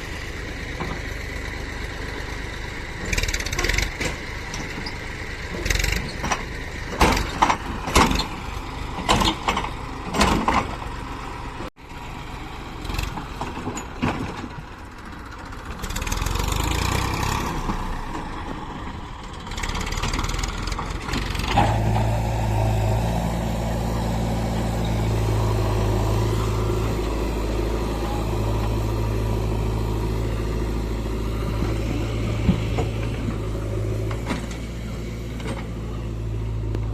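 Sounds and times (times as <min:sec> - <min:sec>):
diesel engine running: 0:00.0 - 0:36.9
sharp knocks and clatter: 0:05.6 - 0:08.3.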